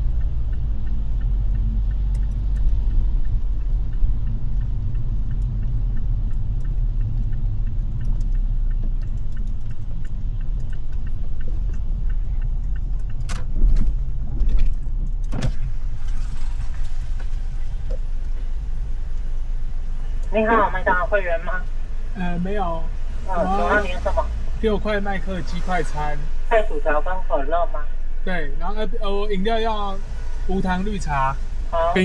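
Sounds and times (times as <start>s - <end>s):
faint regular ticking: 0.0s - 16.1s, 16.7s - 23.2s
car cabin rumble: 0.0s - 32.0s.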